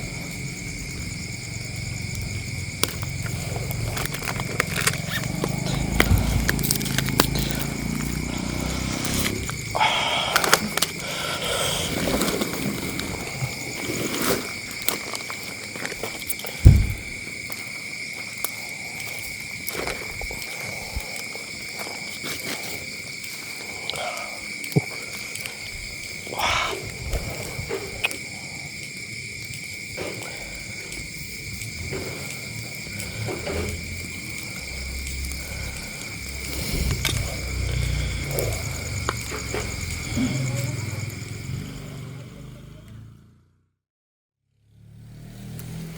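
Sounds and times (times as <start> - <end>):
loud thump: 16.6 - 17.2.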